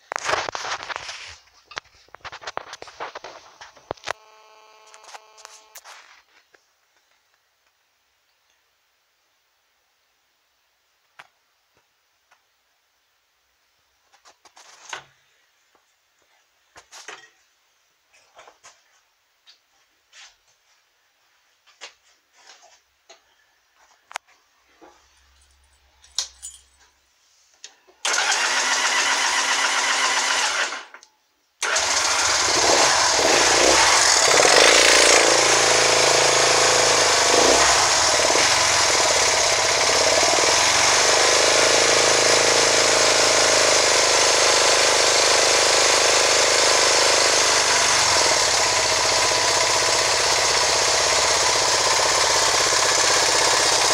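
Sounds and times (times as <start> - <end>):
motorcycle engine cranking: 28.0 - 30.9, 31.6 - 53.9
motorcycle engine running: 31.6 - 53.9.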